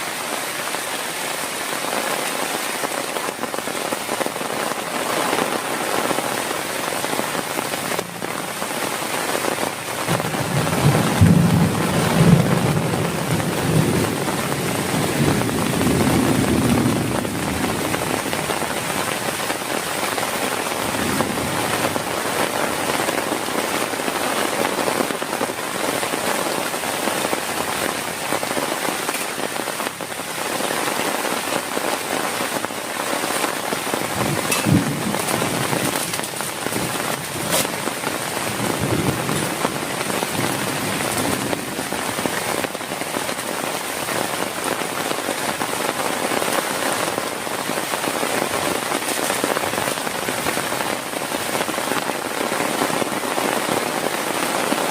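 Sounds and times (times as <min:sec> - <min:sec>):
heavy rain falling: 0:00.0 - 0:54.9
thunder rumbling: 0:06.1 - 0:25.2, 0:33.2 - 0:43.4.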